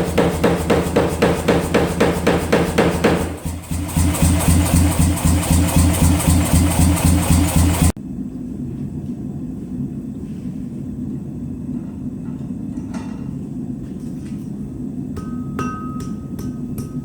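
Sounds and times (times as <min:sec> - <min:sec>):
pulsing machine hum: 0:00.0 - 0:08.0
low rumble: 0:03.4 - 0:08.6.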